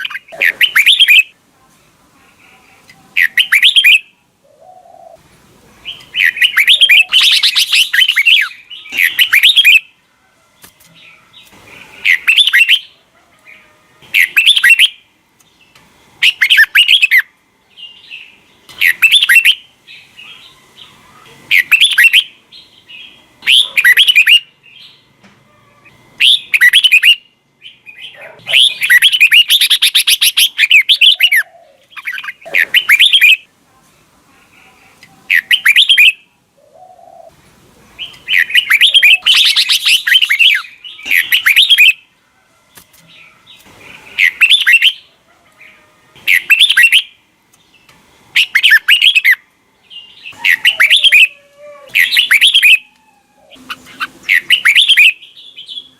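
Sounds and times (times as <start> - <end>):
bird singing whistled notes: 3.2 - 4.1, 38.0 - 42.0, 44.2 - 45.0, 46.3 - 47.2, 53.7 - 55.9.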